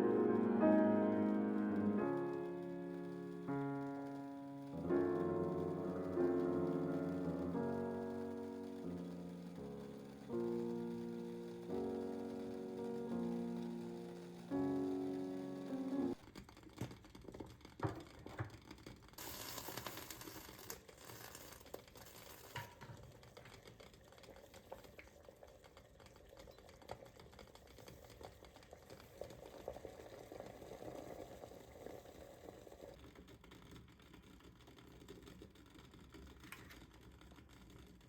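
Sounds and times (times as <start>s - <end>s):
small kitchen clicks and knocks: 16.7s - 19.1s, 22.5s - 23.6s.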